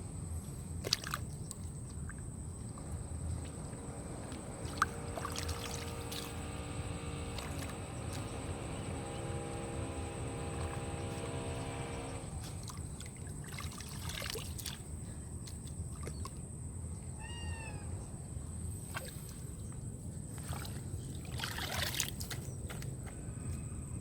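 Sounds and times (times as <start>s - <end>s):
steady low rumble: 1.4s - 13.2s
steady hum: 2.4s - 14.4s
water poured and splashed: 4.6s - 6.4s, 12.4s - 14.9s, 20.4s - 22.5s.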